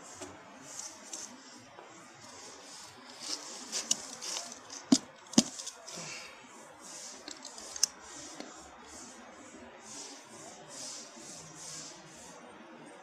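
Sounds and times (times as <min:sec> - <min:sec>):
handling rustling and scraping: 0:00.0 - 0:08.9.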